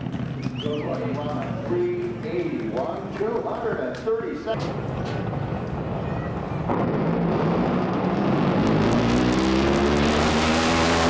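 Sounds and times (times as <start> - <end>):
racing boat engine accelerating: 6.6 - 11.0.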